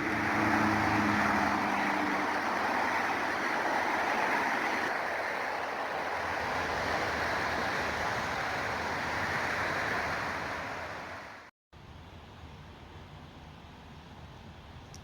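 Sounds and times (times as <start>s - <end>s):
steady rushing noise: 0.0s - 11.5s.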